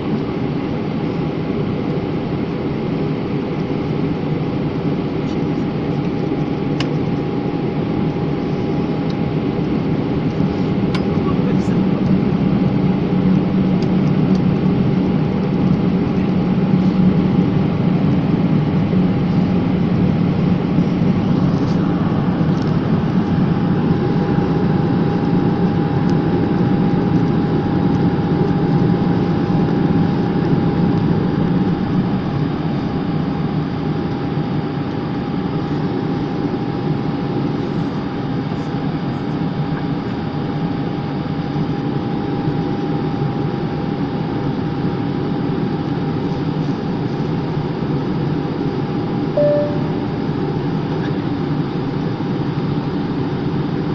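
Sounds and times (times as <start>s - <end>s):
airplane cabin drone: 0.0s - 53.9s
steady tone: 49.4s - 50.2s.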